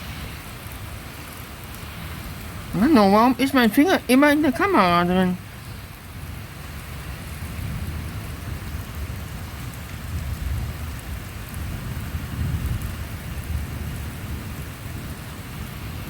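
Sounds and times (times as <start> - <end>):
steady rain: 0.0 - 16.0
rolling thunder rumble: 5.4 - 16.0.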